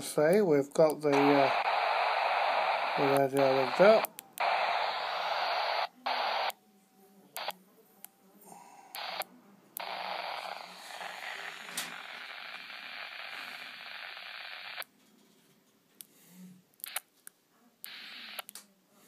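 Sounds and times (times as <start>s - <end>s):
radio clicks: 0.8s - 6.6s, 7.4s - 7.6s, 9.0s - 14.9s, 16.8s - 18.7s
radio speaker hiss: 0.8s - 6.6s, 7.4s - 7.6s, 8.9s - 14.9s, 16.8s - 17.1s, 17.8s - 18.5s.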